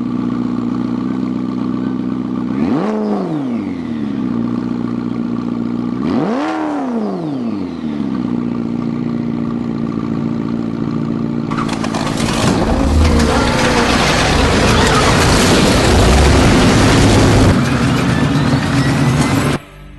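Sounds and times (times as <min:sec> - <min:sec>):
car engine idling: 0:00.0 - 0:02.6, 0:03.6 - 0:06.0, 0:07.9 - 0:19.6
loud rough noise: 0:11.5 - 0:19.6.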